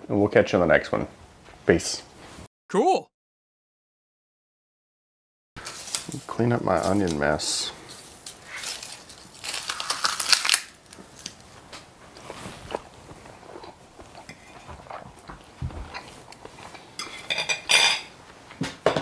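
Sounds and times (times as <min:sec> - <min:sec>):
crunching crispy chicken skin: 0:08.2 - 0:11.5.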